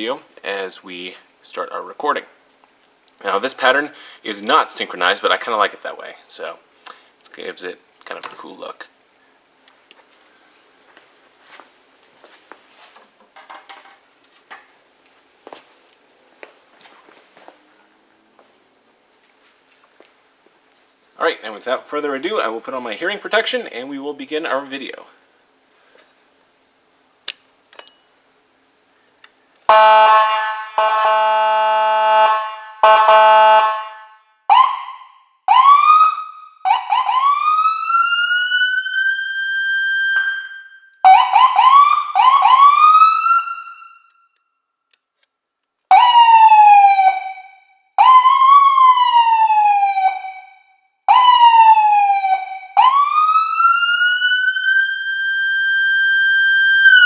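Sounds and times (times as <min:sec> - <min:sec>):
police siren: 0:29.7 - 0:44.4, 0:45.9 - 0:57.0
siren echo: 0:29.7 - 0:44.5, 0:45.9 - 0:57.0.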